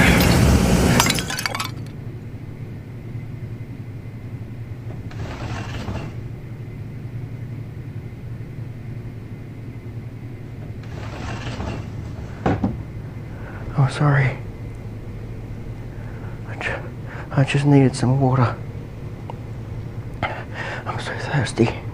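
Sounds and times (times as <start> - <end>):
low hum: 12.0 - 21.9.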